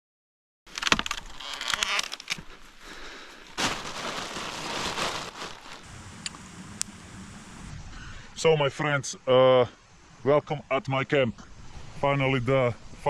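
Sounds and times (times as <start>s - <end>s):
campfire crackling and popping: 0.8s - 7.0s.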